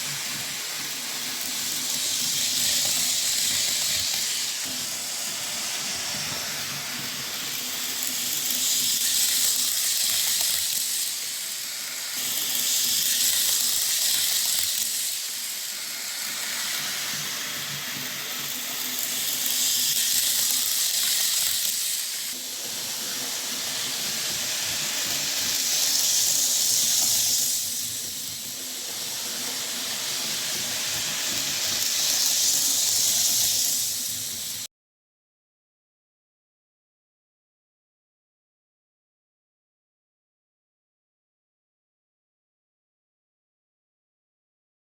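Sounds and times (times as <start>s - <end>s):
model train running on track: 0.0s - 34.7s.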